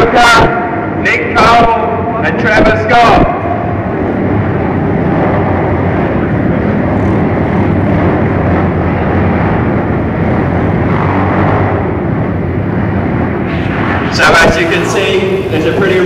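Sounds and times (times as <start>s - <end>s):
dirt bike engines running: 3.2s - 16.0s.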